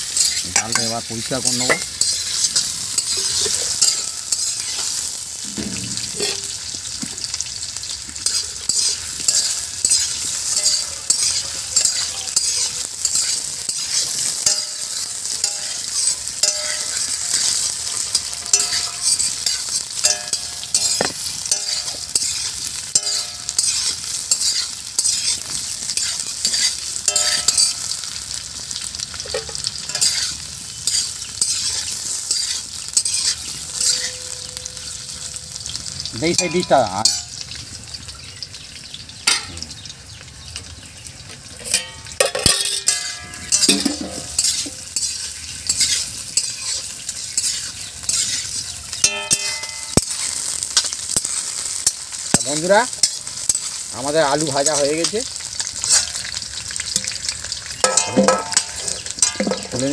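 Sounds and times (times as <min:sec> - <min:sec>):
metal spatula scraping pan: 0:00.0 - 0:28.1, 0:28.7 - 0:35.2, 0:41.6 - 0:56.4, 0:57.0 - 0:59.9
vegetables sizzling in oil: 0:00.0 - 0:59.9.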